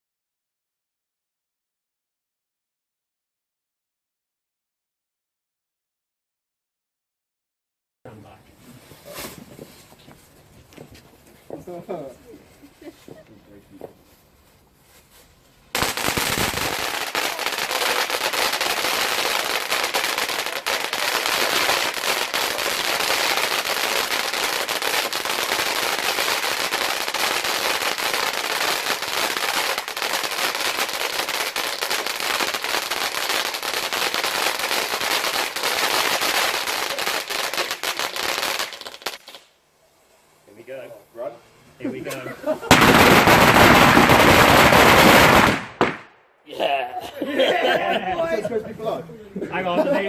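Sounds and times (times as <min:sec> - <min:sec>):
firework crackling and hissing: 0:14.2 - 0:41.8, 0:42.6 - 0:46.1
firework thump: 0:42.7 - 0:44.3, 0:45.4 - 0:46.1.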